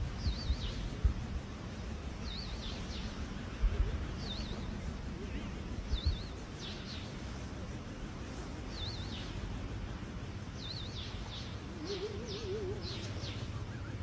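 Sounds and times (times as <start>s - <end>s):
low background hum: 0.0s - 14.0s
lower warbling bird call: 2.2s - 7.4s, 10.4s - 14.0s.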